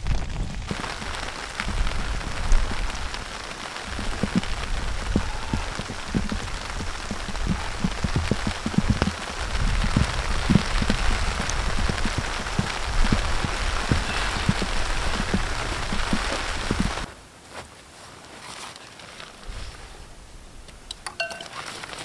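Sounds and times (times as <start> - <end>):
raindrops tapping: 0.0 - 17.1
rain hiss: 0.0 - 17.4, 19.3 - 22.0.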